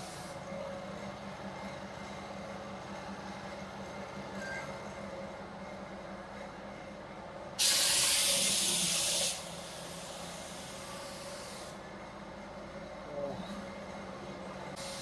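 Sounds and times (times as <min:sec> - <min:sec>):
paint spray gun hissing: 0:07.6 - 0:10.7.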